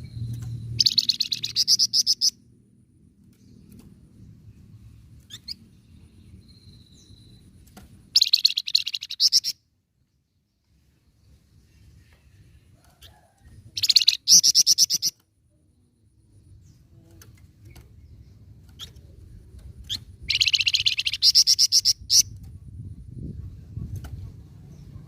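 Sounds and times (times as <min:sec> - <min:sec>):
bird trilling: 0:00.8 - 0:02.4, 0:08.1 - 0:09.6, 0:13.0 - 0:15.2, 0:19.9 - 0:22.4.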